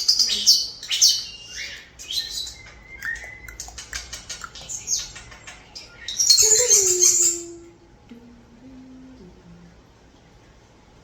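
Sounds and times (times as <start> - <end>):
starlings chirping and whistling: 0.0 - 7.6.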